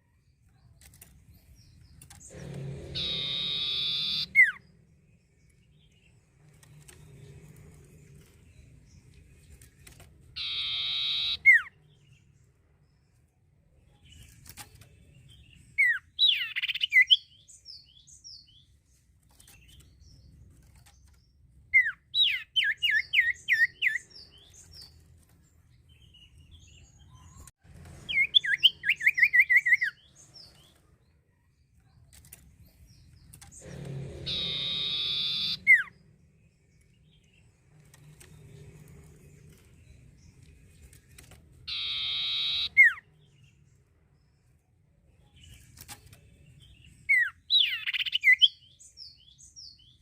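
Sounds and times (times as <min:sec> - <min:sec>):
bird singing whistled notes: 0:01.6 - 0:04.8, 0:10.4 - 0:12.2, 0:15.3 - 0:18.7, 0:21.8 - 0:25.0, 0:28.1 - 0:30.7, 0:33.6 - 0:36.1, 0:41.7 - 0:43.6, 0:46.5 - 0:50.0.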